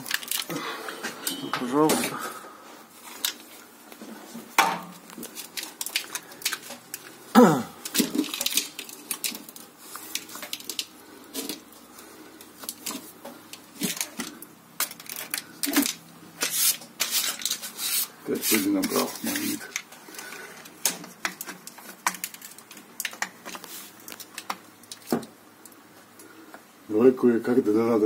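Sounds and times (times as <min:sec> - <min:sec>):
clattering of small parts: 0:00.0 - 0:02.2, 0:03.0 - 0:03.6, 0:04.4 - 0:07.2, 0:07.8 - 0:25.8.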